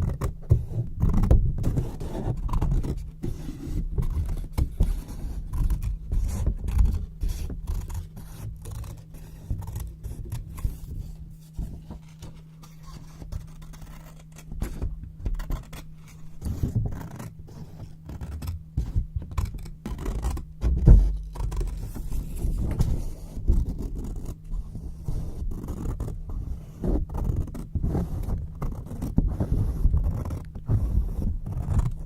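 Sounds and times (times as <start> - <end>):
faint low hum: 0.0 - 32.0
scissors cutting paper: 1.0 - 10.9, 11.7 - 20.4, 21.2 - 22.9.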